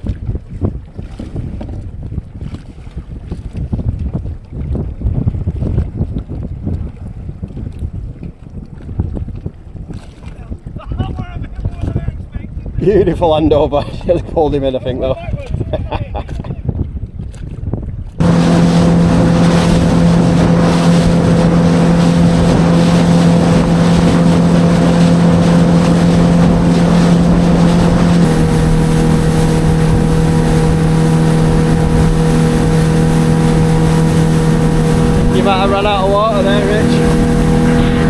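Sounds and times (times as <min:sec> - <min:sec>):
wind and water rush: 0:00.0 - 0:38.0
outboard motor running: 0:18.2 - 0:38.0.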